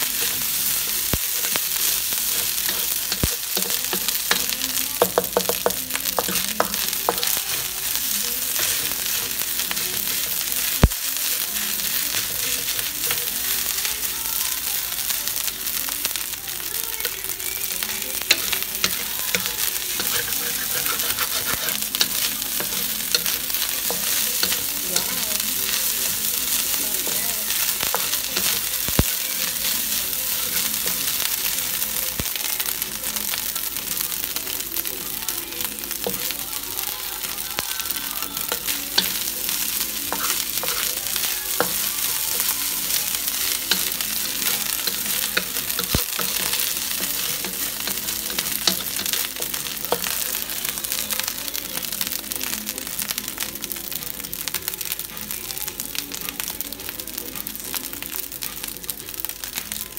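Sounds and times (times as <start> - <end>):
fried rice sizzling in wok: 0.0 - 59.9
wooden spatula scraping wok: 18.3 - 31.4.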